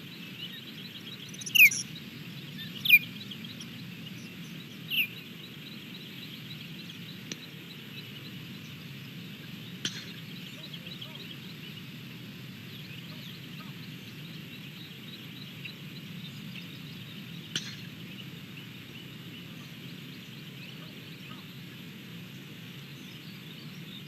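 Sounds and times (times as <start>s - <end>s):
low background noise: 0.0s - 24.0s
high bird chirps: 1.2s - 2.0s.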